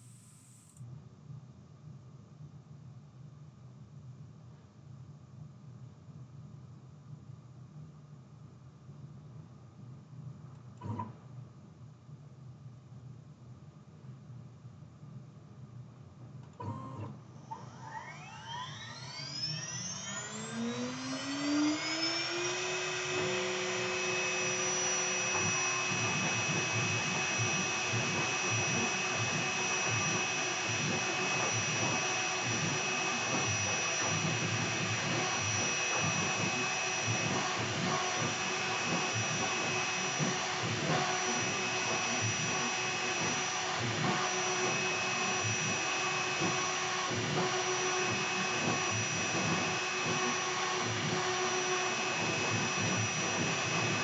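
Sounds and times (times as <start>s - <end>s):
router spindle whine: 0.0s - 0.8s, 16.7s - 54.0s.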